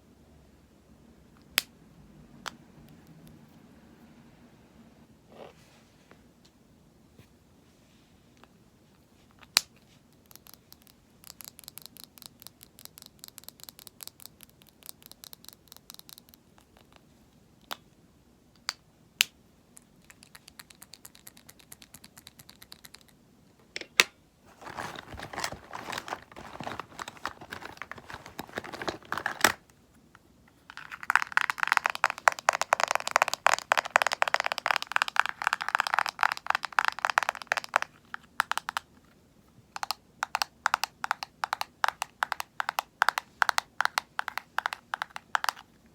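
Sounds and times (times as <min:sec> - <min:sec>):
fast tapping and scratching: 0:24.5 - 0:29.6, 0:30.8 - 0:38.8, 0:39.8 - 0:45.7.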